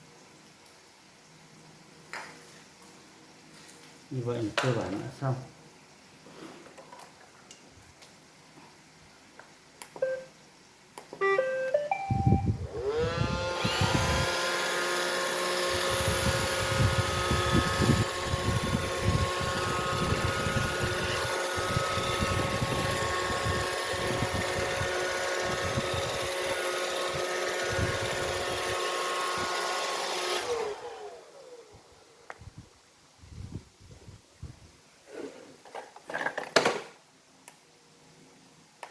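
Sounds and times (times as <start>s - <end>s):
robot vacuum start-up beeps: 10.0s - 10.3s, 11.2s - 13.1s
robot vacuum motor whine: 12.6s - 31.6s.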